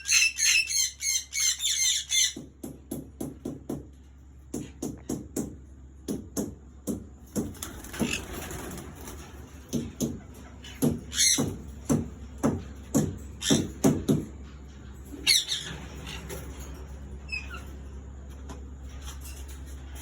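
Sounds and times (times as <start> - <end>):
parrots squawking: 0.0 - 2.5, 10.4 - 11.7, 13.4 - 14.0, 15.1 - 17.8.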